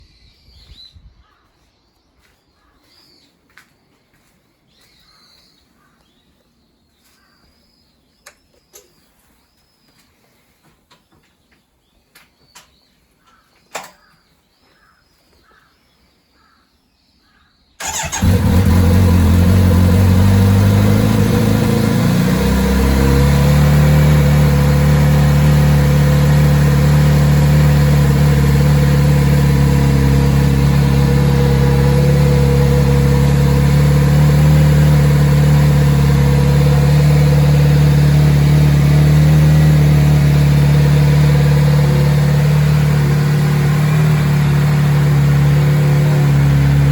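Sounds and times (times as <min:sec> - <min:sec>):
motorcycle engine starting and idling: 0:17.8 - 0:46.9.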